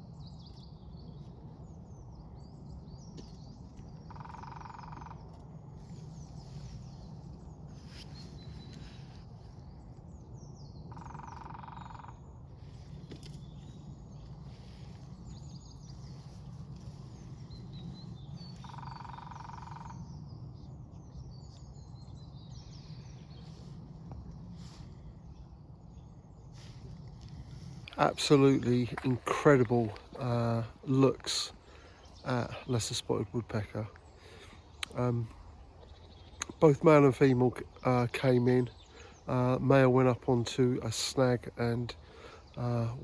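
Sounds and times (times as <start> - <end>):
songbirds chirping: 0.0 - 43.0
steady low rumble: 0.0 - 43.0
woodpecker drumming: 3.8 - 6.1, 10.9 - 12.3, 13.0 - 20.0.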